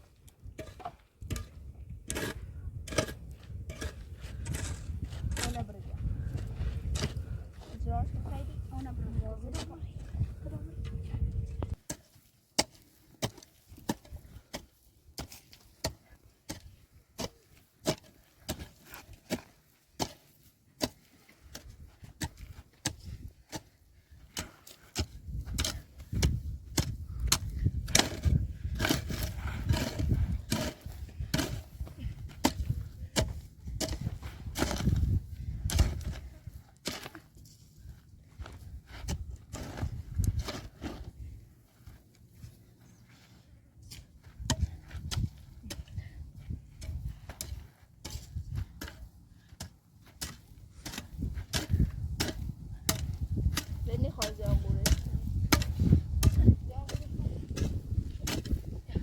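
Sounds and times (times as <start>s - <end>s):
low rumble: 3.9s - 11.8s.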